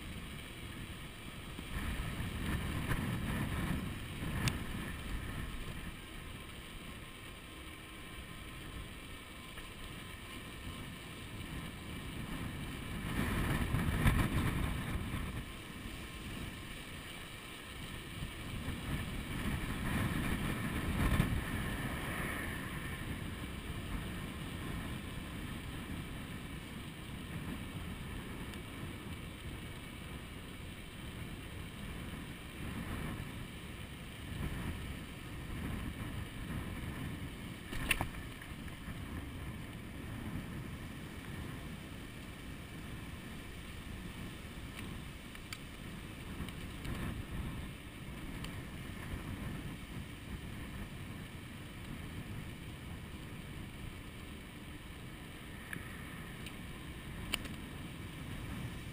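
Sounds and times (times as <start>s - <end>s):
wind buffeting microphone: 1.6s - 6.0s, 12.2s - 15.6s, 18.2s - 26.4s, 34.3s - 45.1s.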